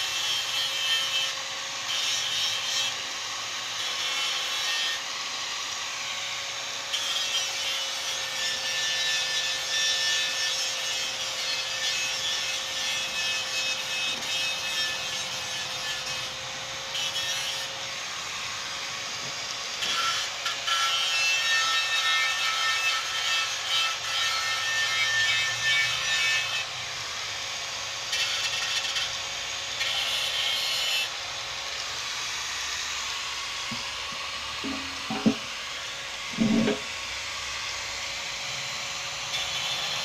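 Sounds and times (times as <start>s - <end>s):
abrasive rubbing on metal tank: 34.6s - 35.5s, 36.3s - 36.9s.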